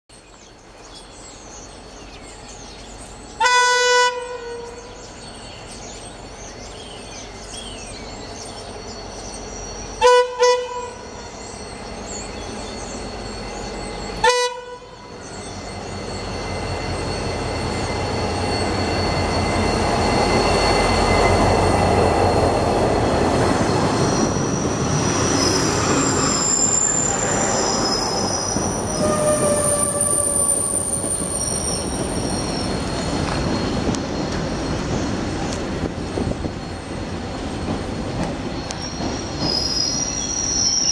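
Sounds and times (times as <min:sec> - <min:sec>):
train rumble: 0:00.2 - 0:40.9
locomotive horn blasts: 0:03.4 - 0:04.9, 0:10.0 - 0:11.1, 0:14.2 - 0:15.0, 0:28.9 - 0:30.4
wheels squealing on curve: 0:15.1 - 0:35.5, 0:38.5 - 0:40.9.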